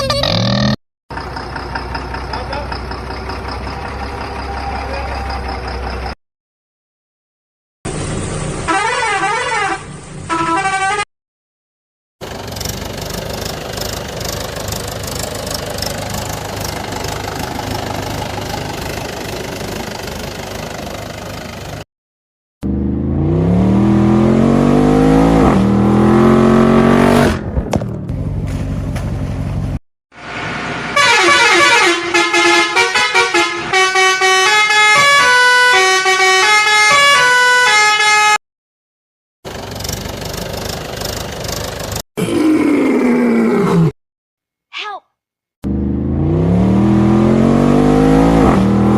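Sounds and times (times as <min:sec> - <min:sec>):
engine running: 0:00.0 - 0:06.1, 0:12.2 - 0:21.8, 0:22.6 - 0:30.9, 0:39.5 - 0:42.0
toy vehicle horns: 0:08.7 - 0:11.1, 0:31.0 - 0:38.4
stepped musical horn notes: 0:31.0 - 0:38.4.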